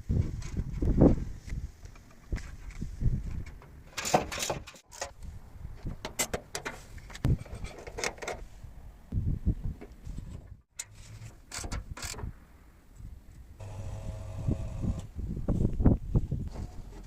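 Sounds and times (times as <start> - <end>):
clicks and rattles of parts handled: 1.8 - 8.4, 9.8 - 12.2.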